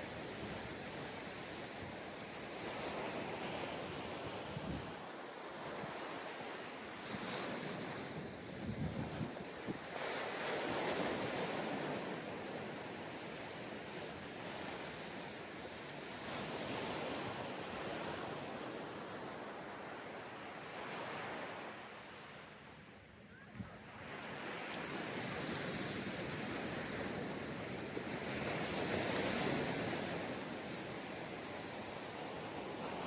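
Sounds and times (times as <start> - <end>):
sea waves breaking on beach: 0.0 - 22.2.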